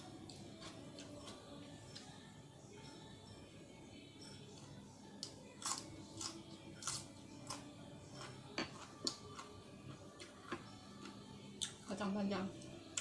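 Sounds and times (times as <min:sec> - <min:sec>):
crunchy food being chewed: 0:05.2 - 0:11.9.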